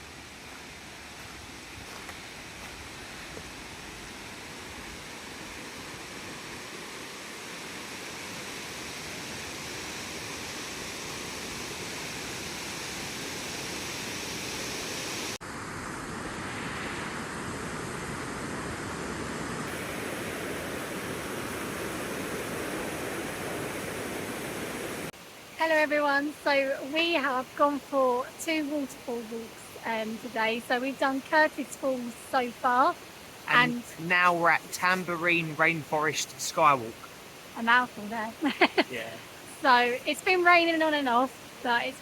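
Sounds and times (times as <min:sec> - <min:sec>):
waterfall rushing: 0:32.5 - 0:37.8, 0:38.7 - 0:42.0.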